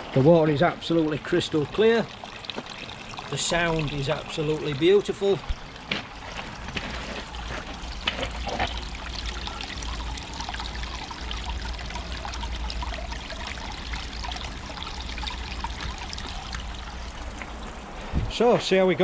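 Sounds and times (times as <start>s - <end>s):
water trickling down stones: 0.0s - 19.0s
low steady rumble: 0.7s - 19.0s.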